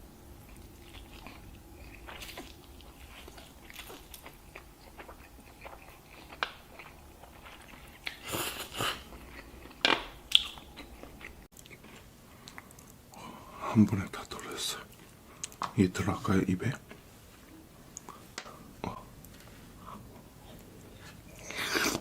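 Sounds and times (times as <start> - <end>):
person chewing food: 0.3 - 13.3, 14.9 - 15.7.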